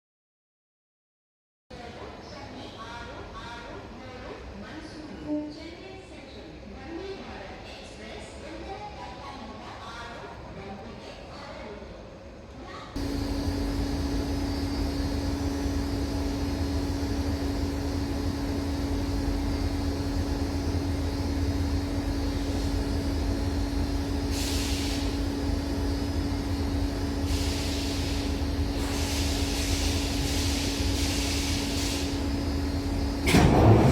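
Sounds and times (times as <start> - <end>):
locomotive engine hum: 13.0 - 33.9
air hiss: 24.3 - 25.2, 27.3 - 32.2.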